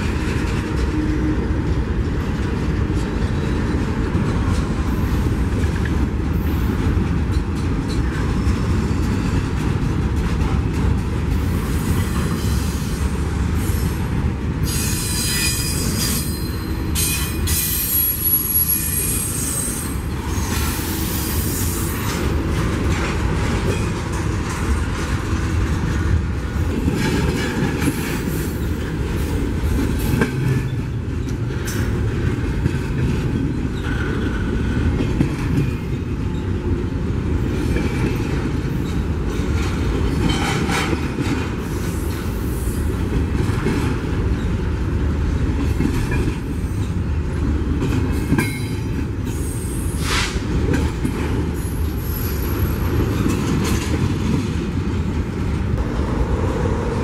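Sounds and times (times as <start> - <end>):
train wheels on rails: 0.0 - 57.0
high-pitched wheel squeal: 14.7 - 21.8.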